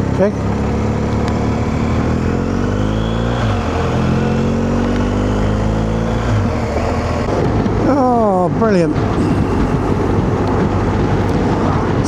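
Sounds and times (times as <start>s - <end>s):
motorcycle engine accelerating: 0.0s - 12.0s
wind noise: 5.2s - 12.0s.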